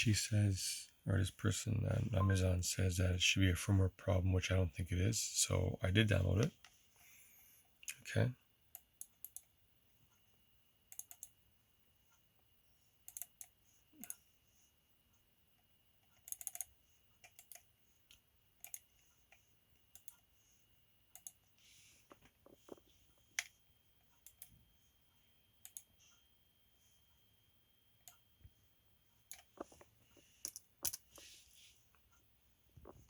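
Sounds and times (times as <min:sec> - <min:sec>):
faint steady high tone: 0:00.0 - 0:21.9, 0:22.6 - 0:29.4
computer keyboard and mouse clicks: 0:10.9 - 0:11.4, 0:13.1 - 0:14.2, 0:16.1 - 0:20.2, 0:21.1 - 0:21.4, 0:24.2 - 0:24.6, 0:25.6 - 0:25.9, 0:29.3 - 0:29.8, 0:30.4 - 0:31.0.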